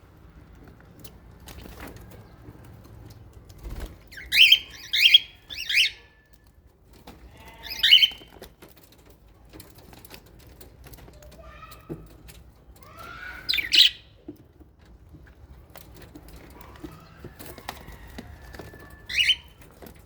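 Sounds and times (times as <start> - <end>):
parrots calling harshly: 4.2 - 6.1, 7.4 - 8.3, 12.8 - 14.1, 19.1 - 19.5.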